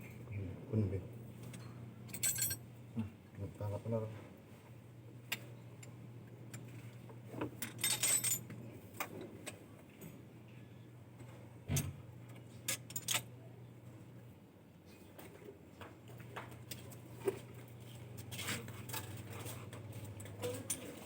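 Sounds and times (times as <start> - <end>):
low steady hum: 0.0 - 21.0
metal tools clinking and rattling: 1.5 - 2.6, 7.6 - 8.5, 12.7 - 13.3, 18.3 - 21.0.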